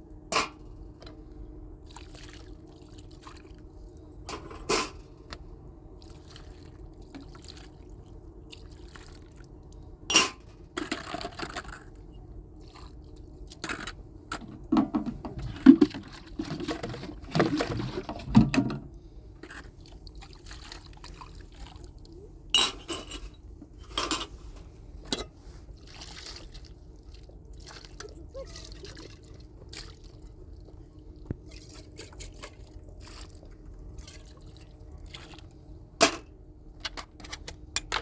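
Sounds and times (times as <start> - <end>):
water pouring and splashing: 6.0 - 9.6, 14.4 - 18.8, 19.4 - 22.2, 25.6 - 30.6, 31.4 - 35.5
dishes clinking and knocking: 14.3 - 18.8, 22.6 - 24.3.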